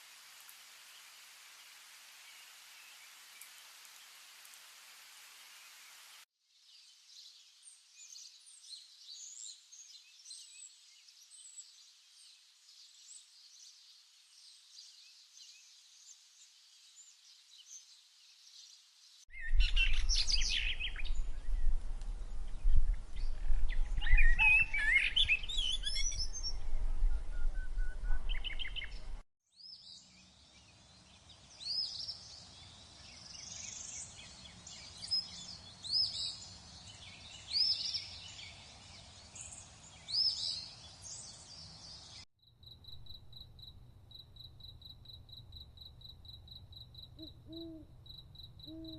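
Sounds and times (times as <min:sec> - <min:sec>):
birds calling and chirping: 0:22.4 - 0:29.2
low rumble: 0:26.2 - 0:29.2.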